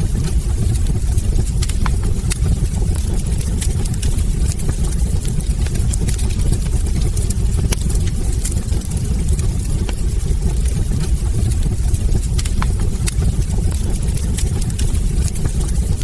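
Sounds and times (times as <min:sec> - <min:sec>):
fire crackles and pops: 0:00.0 - 0:16.0
wood fire roaring: 0:00.0 - 0:16.0.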